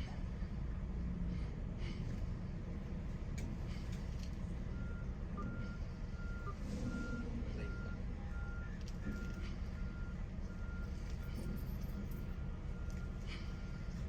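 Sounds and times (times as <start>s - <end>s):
truck engine running: 0.2s - 14.0s
reversing alarm beeps: 4.7s - 14.0s.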